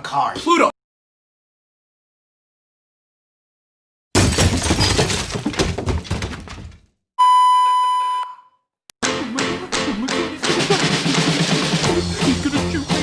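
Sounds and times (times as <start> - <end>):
steady high beep: 7.2 - 8.6
music with drums: 9.7 - 13.0.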